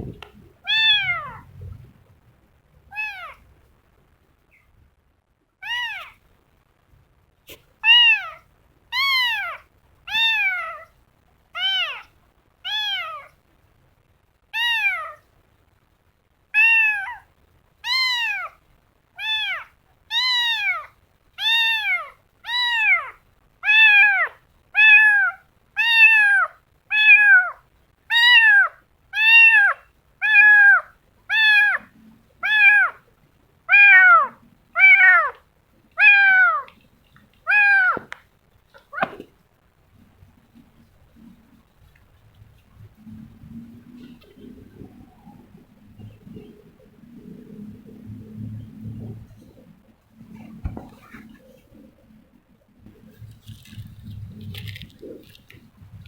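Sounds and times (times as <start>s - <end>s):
kitten meowing: 0.6s - 1.5s, 2.9s - 3.4s, 5.6s - 6.2s, 7.8s - 10.9s, 11.6s - 13.4s, 14.6s - 15.2s, 16.6s - 18.6s, 19.2s - 33.0s, 33.7s - 35.4s, 36.0s - 36.7s, 37.4s - 38.2s, 38.8s - 39.2s.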